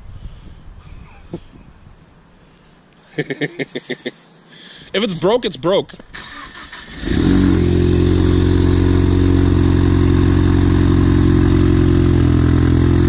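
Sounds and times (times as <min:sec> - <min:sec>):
car engine idling: 0:06.8 - 0:13.0.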